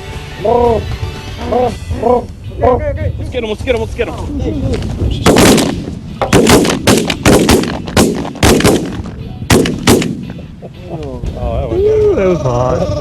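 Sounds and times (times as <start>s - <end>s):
shotgun shots: 5.2s - 10.5s.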